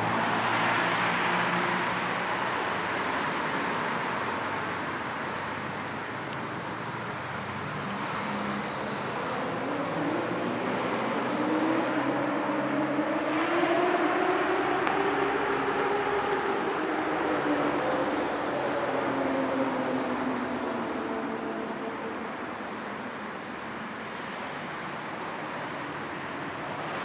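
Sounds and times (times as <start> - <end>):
road traffic: 0.0 - 27.0
vehicle engine rising in pitch: 9.4 - 22.2.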